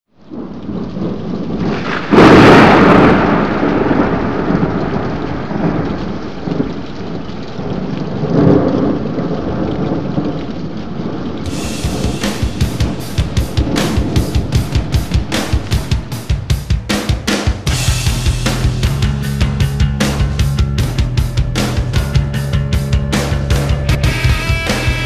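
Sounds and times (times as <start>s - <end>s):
rain hiss: 0.1s - 25.0s
thunder rumble: 0.2s - 25.0s
loud thunder crack: 0.3s - 10.3s, 11.0s - 25.0s
music with drum hits: 11.5s - 25.0s.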